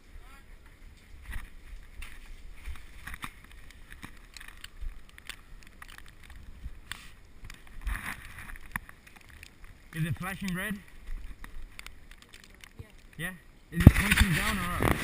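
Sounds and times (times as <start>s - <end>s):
wind rumble on microphone: 0.0s - 10.2s, 13.8s - 15.0s.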